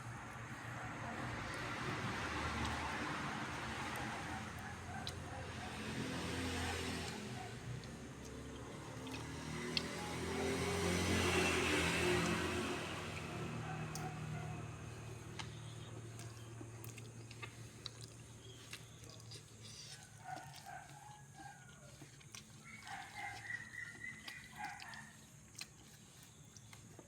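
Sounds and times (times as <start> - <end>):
animal calling: 18.9 - 25.3.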